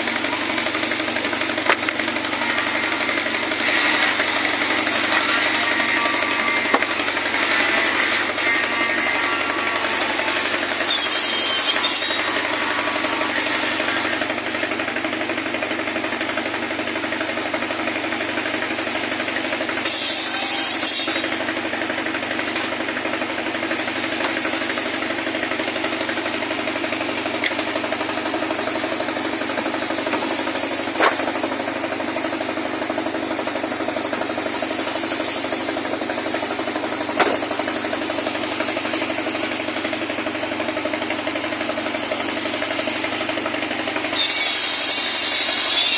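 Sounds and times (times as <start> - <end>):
cutting machine motor drone: 0.0 - 45.9
rasping cutting burst: 0.0 - 45.9
sharp knocks: 37.2 - 37.5.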